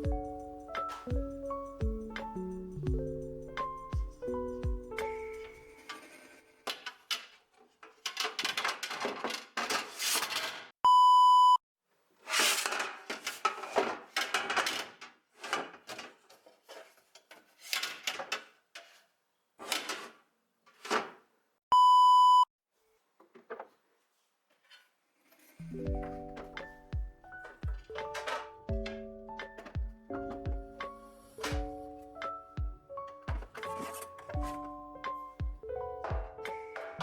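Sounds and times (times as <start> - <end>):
rustling and crinkling handling: 12.3 - 19.1, 33.0 - 35.4.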